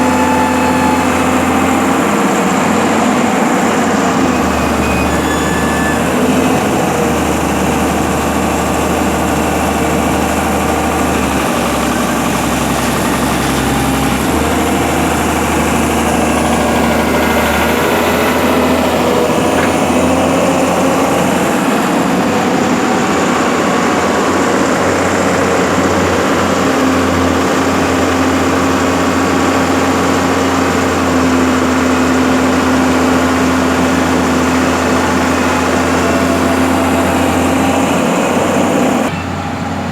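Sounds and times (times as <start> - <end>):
heavy machine engine running: 0.0 - 39.9.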